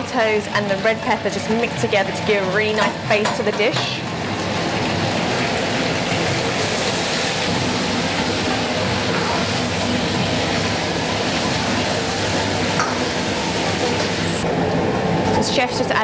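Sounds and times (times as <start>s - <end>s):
food sizzling in a wok: 2.5s - 14.4s.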